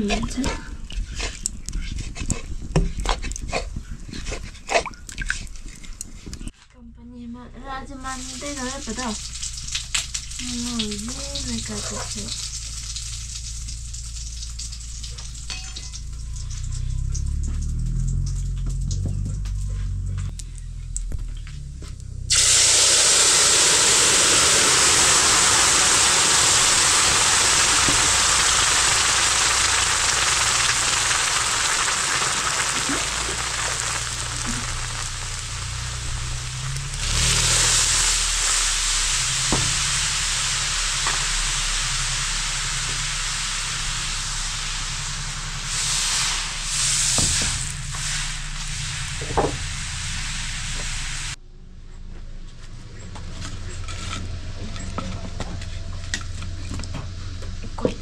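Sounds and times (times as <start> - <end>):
food sizzling in hot oil: 8.0 - 19.0, 22.3 - 51.4.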